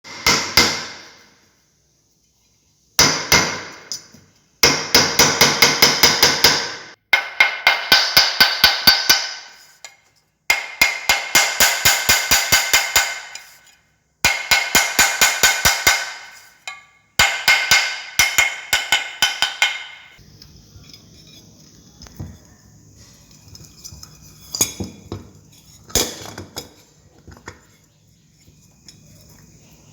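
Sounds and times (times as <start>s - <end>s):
rapid hammering on metal: 4.6s - 9.7s, 10.5s - 13.5s, 14.2s - 16.4s, 17.2s - 20.2s.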